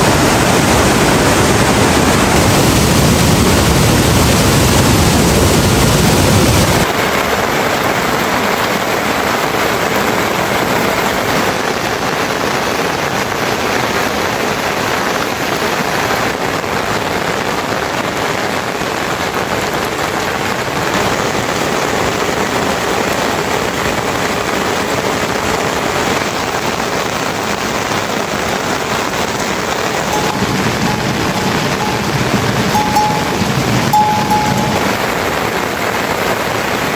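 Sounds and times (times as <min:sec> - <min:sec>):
steady rain: 0:00.0 - 0:36.9.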